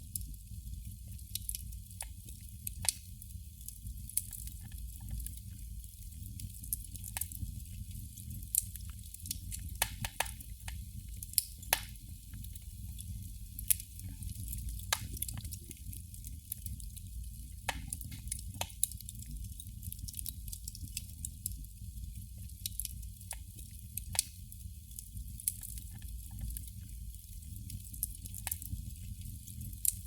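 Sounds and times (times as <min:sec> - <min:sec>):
candle wick popping and sizzling: 0:00.0 - 0:30.0.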